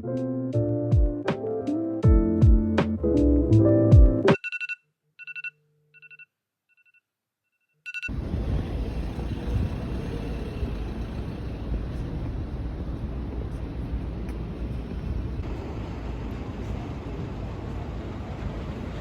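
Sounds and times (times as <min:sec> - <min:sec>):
background music: 0:00.0 - 0:04.4
short electronic beeps: 0:04.3 - 0:06.2, 0:07.9 - 0:08.1
steady rumbling noise: 0:08.1 - 0:19.0.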